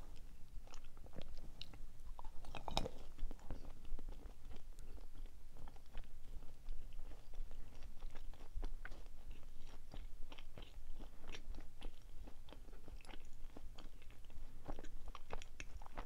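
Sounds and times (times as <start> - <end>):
person chewing: 0.0 - 16.0.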